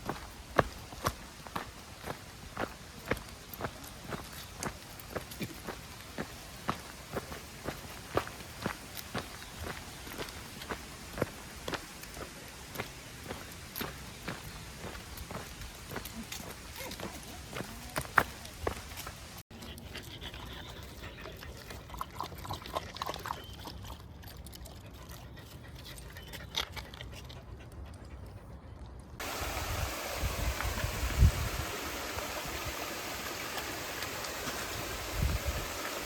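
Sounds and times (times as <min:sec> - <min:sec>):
stream water rushing: 0:00.0 - 0:16.8, 0:29.2 - 0:36.0.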